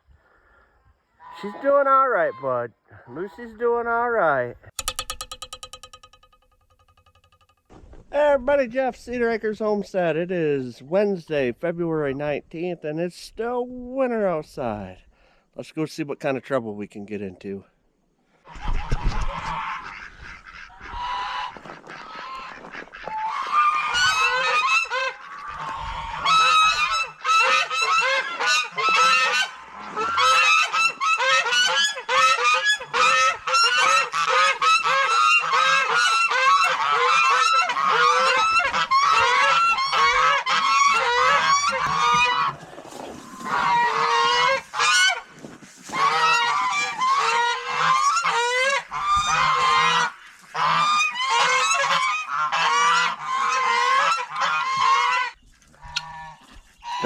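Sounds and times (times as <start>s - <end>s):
geese honking: 1.2s - 4.0s, 19.3s - 45.3s, 45.9s - 57.0s.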